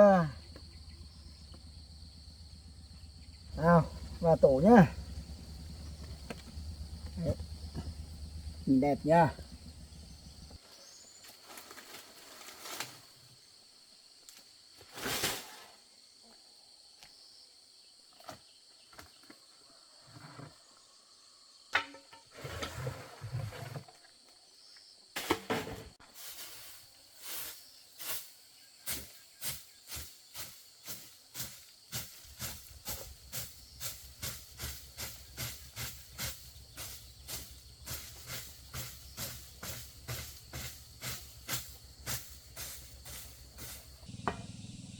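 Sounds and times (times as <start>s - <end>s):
high insect drone: 0.0s - 12.8s, 26.2s - 44.9s
short rasping strokes: 30.9s - 44.1s.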